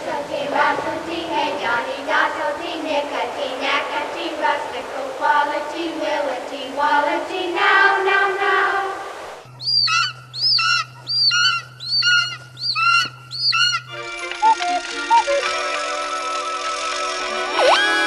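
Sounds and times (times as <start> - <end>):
melodic vocal sound: 0.0 - 9.2
steady low hum: 0.0 - 14.0
bird whistled chirps: 9.5 - 15.5.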